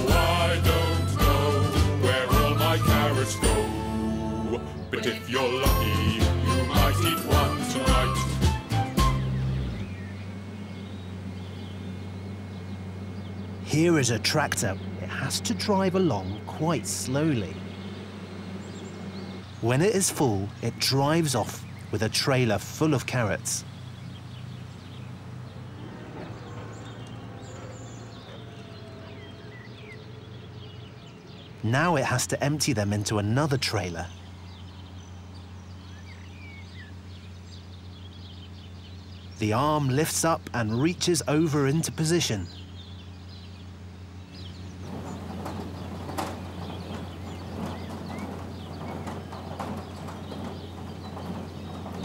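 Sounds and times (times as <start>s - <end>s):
birds chirping: 0.0s - 52.0s
tractor engine droning: 0.0s - 52.0s
carrots clattering on elevator: 44.8s - 52.0s.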